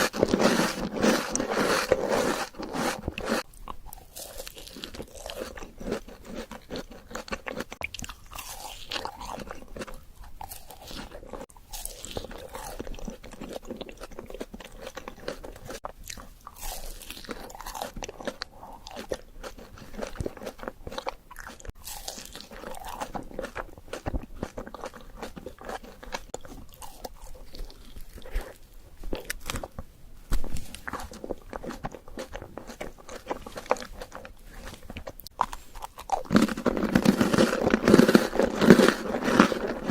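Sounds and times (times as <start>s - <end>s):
cookie crunching: 0.0s - 39.9s.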